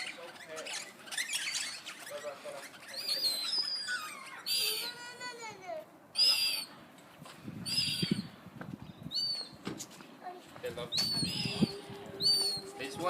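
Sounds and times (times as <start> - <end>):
parrots whistling: 0.0 - 5.1, 6.2 - 6.7, 7.6 - 8.3, 9.1 - 9.6, 10.9 - 13.0
parrot squawks: 0.0 - 5.2.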